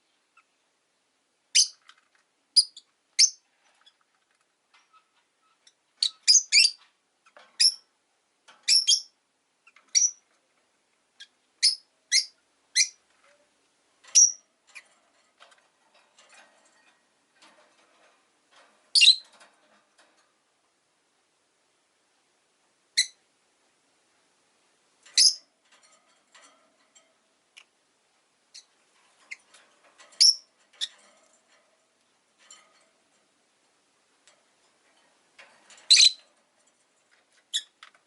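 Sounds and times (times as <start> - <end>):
lovebirds chirping: 1.5 - 1.8, 5.0 - 7.9, 8.6 - 10.3, 11.1 - 13.0, 14.1 - 14.9, 18.9 - 19.3, 25.2 - 25.4, 35.9 - 36.3.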